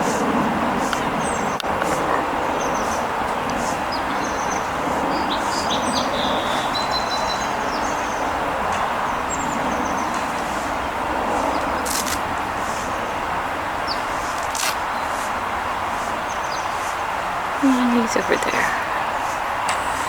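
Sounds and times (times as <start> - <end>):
steady rushing background noise: 0.0 - 20.0
small birds chirping: 0.8 - 10.4, 16.0 - 19.3.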